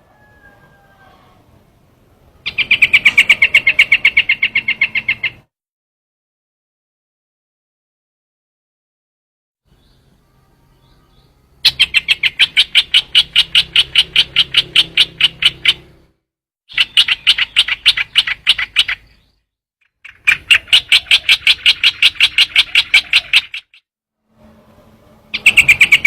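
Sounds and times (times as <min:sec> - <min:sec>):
bird call rapid sharp notes: 0:02.4 - 0:05.5, 0:11.6 - 0:16.0, 0:16.7 - 0:19.2, 0:19.9 - 0:23.8, 0:25.3 - 0:26.0.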